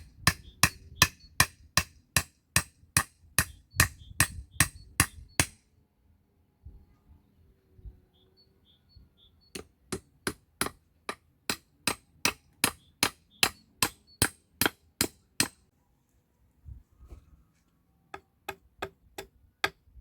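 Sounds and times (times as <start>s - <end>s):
hammer striking nail: 0.3s - 5.6s, 9.6s - 15.6s.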